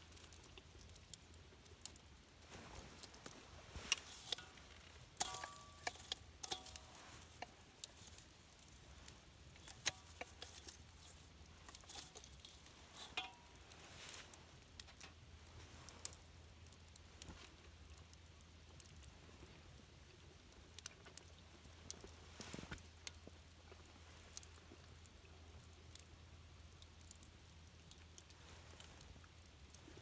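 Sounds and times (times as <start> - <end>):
light clicks and taps: 0.1 - 19.1.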